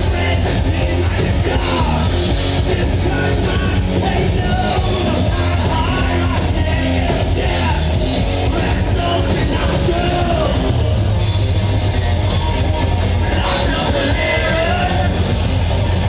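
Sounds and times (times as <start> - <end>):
heavy metal band playing: 0.0 - 16.0
person singing: 12.2 - 15.3.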